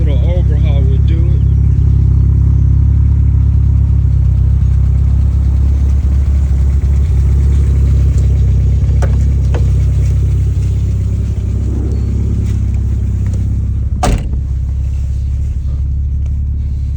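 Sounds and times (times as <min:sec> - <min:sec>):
car engine idling with knock: 0:00.0 - 0:16.9.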